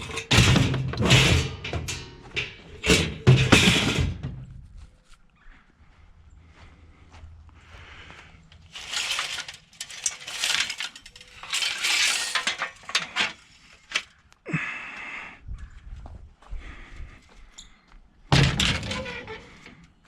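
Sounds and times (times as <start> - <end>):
scrap metal rattling and scraping: 0.0 - 4.8, 8.6 - 14.1, 18.3 - 20.0.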